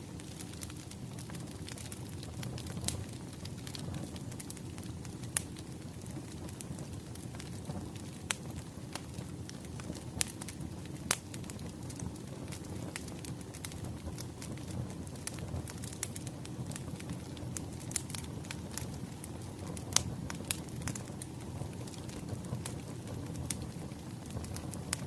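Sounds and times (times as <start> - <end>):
burning logs popping: 0.0 - 25.0
wood fire crackling: 0.0 - 25.0.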